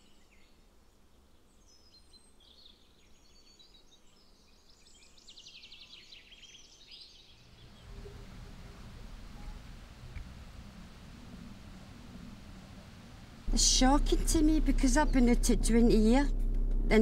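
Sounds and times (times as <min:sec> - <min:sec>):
songbirds chirping and trilling: 0:00.0 - 0:10.2
low rumble: 0:07.7 - 0:17.0.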